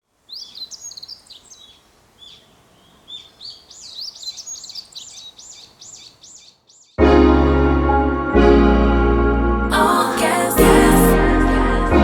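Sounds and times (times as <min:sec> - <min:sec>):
birds chirping: 0:00.2 - 0:07.0.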